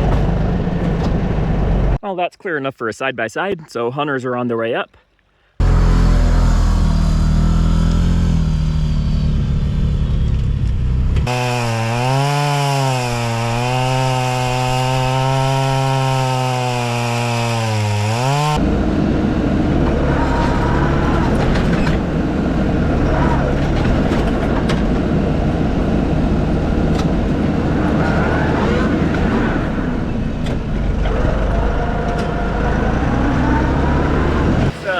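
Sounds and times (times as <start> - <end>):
rough noisy engine: 5.6 - 34.9
chainsaw running at high revs: 11.2 - 18.6.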